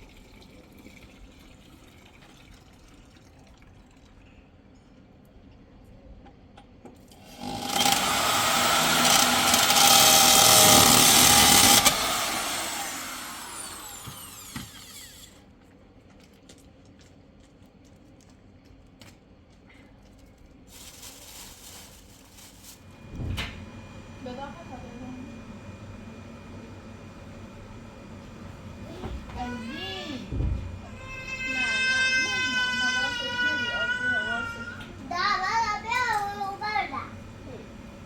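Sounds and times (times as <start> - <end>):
vacuum cleaner motor: 7.2 - 15.4, 22.8 - 38.0
thump: 30.3 - 30.8.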